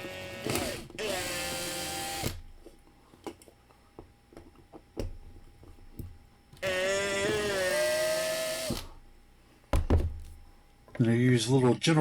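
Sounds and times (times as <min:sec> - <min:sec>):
power drill whining: 0:00.0 - 0:02.4, 0:06.6 - 0:09.0.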